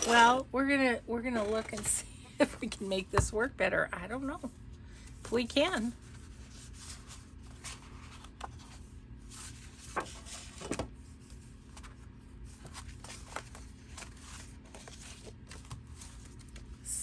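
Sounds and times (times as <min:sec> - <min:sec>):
paper rustling and shuffling: 0:05.0 - 0:16.9.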